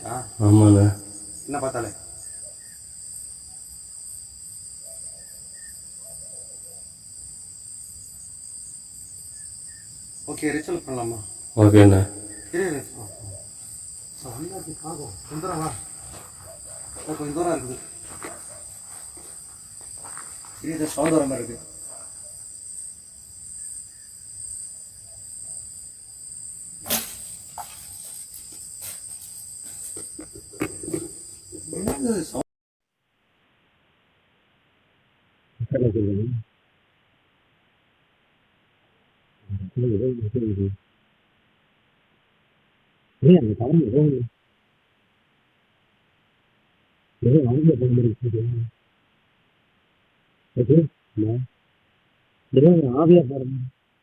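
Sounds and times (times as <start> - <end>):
crickets trilling: 0.0 - 32.4.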